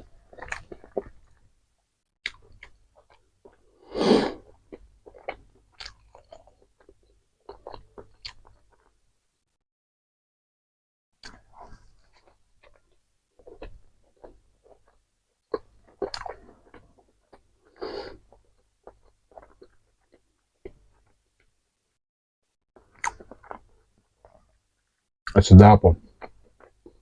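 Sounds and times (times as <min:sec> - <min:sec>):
chewing and wet mouth smacks: 0:00.0 - 0:01.4, 0:04.5 - 0:09.0, 0:11.2 - 0:21.5, 0:22.8 - 0:24.6, 0:26.1 - 0:27.0.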